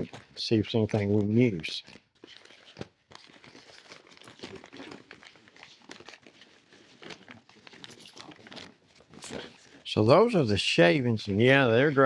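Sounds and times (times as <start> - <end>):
paper bag crinkling: 0.0 - 10.6.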